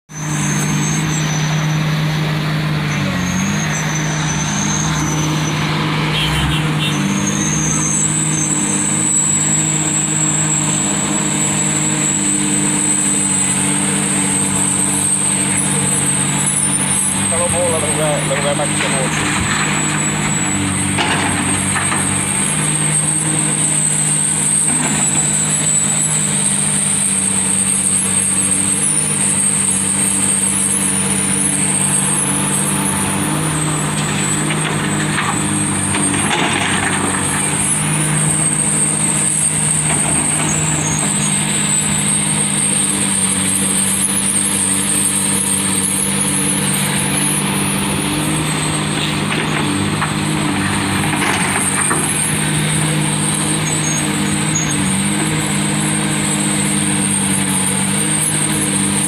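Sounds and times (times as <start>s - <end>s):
excavator diesel engine running: 0.1s - 59.0s.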